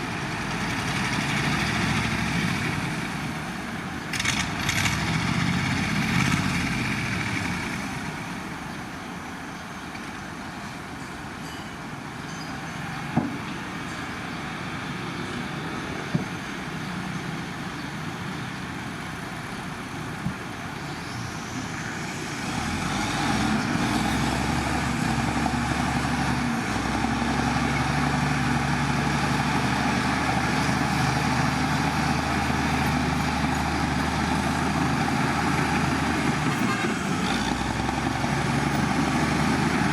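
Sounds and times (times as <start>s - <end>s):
diesel earthmoving machinery running: 0.0s - 9.2s, 19.2s - 39.9s.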